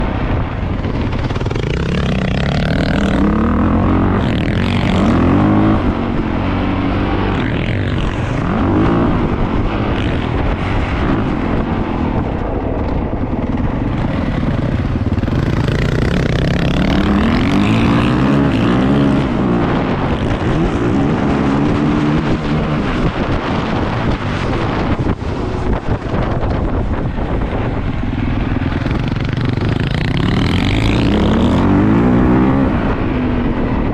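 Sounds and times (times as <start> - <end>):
dirt bike engine revving: 0.9 - 11.6, 13.6 - 24.9, 28.7 - 33.0.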